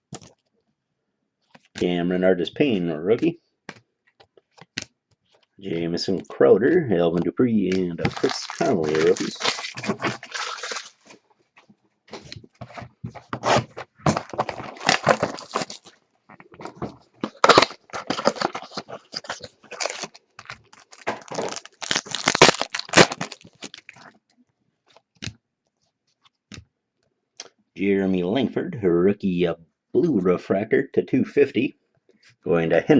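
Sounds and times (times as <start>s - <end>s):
cards and packaging rustling: 3.1s - 24.2s.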